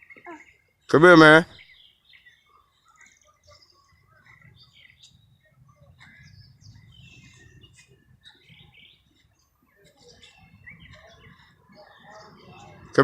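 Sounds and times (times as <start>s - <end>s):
bird chirps and calls: 0.0s - 13.0s.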